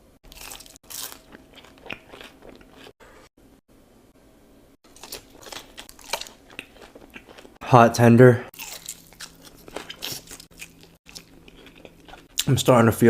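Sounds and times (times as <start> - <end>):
crunchy biting: 0.3 - 3.0, 4.9 - 7.5, 8.6 - 12.3.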